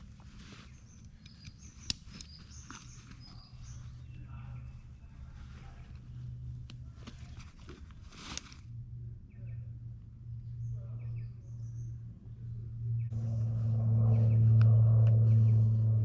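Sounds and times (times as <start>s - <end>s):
rustle: 0.0s - 4.0s, 6.9s - 8.7s
steady low hum: 0.0s - 16.0s.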